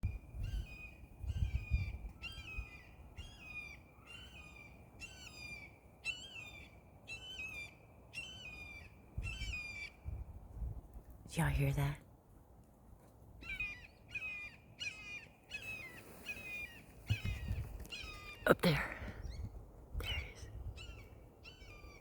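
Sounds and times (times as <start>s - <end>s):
wind rumble on microphone: 0.0s - 3.5s, 9.1s - 11.7s, 16.8s - 22.0s.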